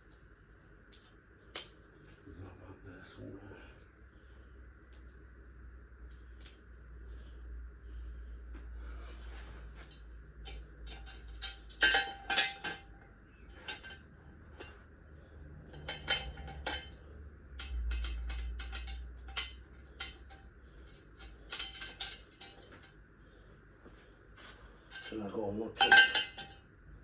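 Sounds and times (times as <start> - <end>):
metallic clinks of tools and parts: 9.8 - 14.8, 15.6 - 23.0, 24.9 - 26.7.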